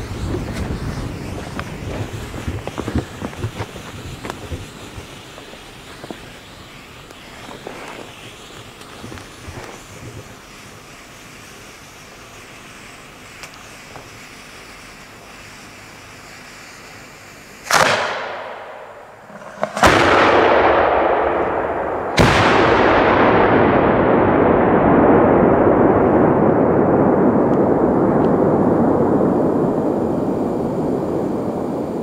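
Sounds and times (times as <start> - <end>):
firework bangs: 0.0 - 32.0
rolling rumble: 18.8 - 32.0.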